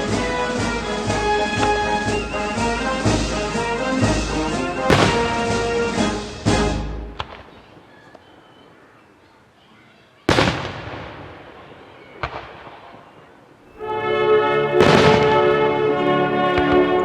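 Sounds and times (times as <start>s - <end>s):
fireworks sharp reports: 0.0s - 8.0s, 10.2s - 17.0s
firework boom echoing: 14.8s - 15.5s.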